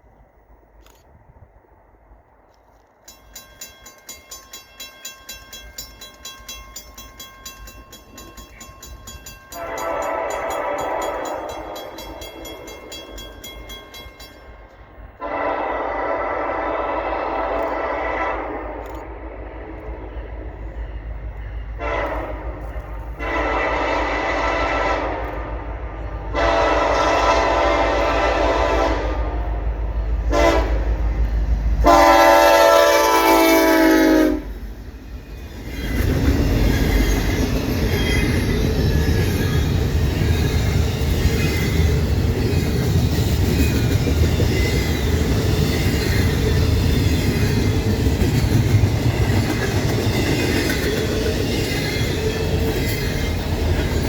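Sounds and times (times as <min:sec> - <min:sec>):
train rumbling past: 0:00.0 - 0:54.0
locomotive horn blasts: 0:09.6 - 0:12.0, 0:15.2 - 0:18.8, 0:21.8 - 0:22.6, 0:23.2 - 0:25.6, 0:26.3 - 0:29.5, 0:30.3 - 0:30.9, 0:31.8 - 0:34.5.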